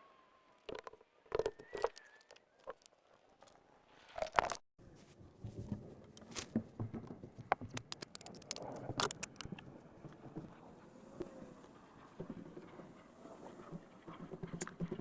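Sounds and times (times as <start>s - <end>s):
small clicks clinks and knocks: 7.0s - 9.6s.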